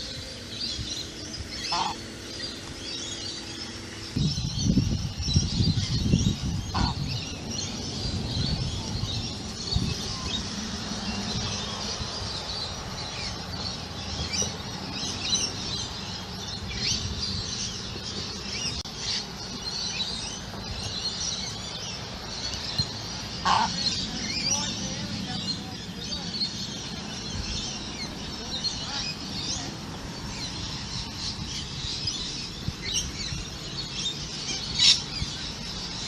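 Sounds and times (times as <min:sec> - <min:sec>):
flock of birds chattering: 0:00.0 - 0:36.0
steady low rumble: 0:00.0 - 0:36.0
louder lower bird call: 0:01.6 - 0:02.1.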